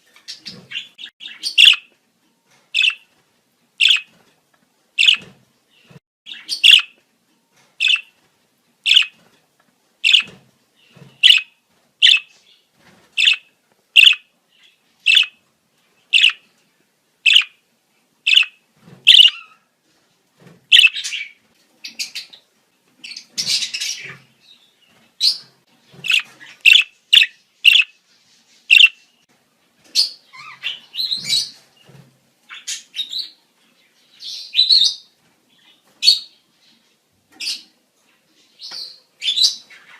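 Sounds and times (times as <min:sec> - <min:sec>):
budgerigars chirping: 0:00.3 - 0:01.9, 0:02.8 - 0:03.0, 0:03.8 - 0:04.1, 0:05.0 - 0:05.3, 0:06.3 - 0:07.0, 0:07.8 - 0:08.1, 0:08.9 - 0:09.2, 0:10.0 - 0:10.3, 0:11.2 - 0:12.4, 0:13.2 - 0:15.4, 0:16.1 - 0:16.4, 0:17.3 - 0:17.6, 0:18.3 - 0:19.6, 0:20.7 - 0:22.4, 0:26.0 - 0:28.0, 0:28.7 - 0:29.0.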